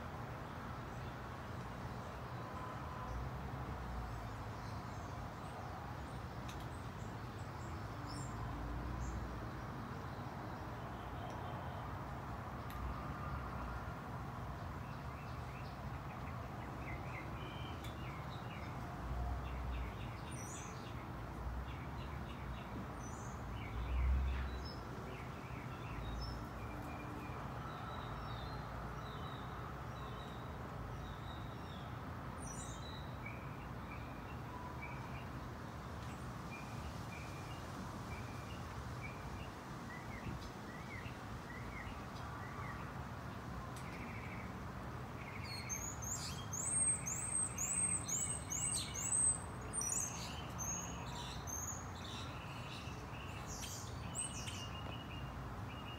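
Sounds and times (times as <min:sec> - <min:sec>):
small birds chirping: 0:45.2 - 0:55.9.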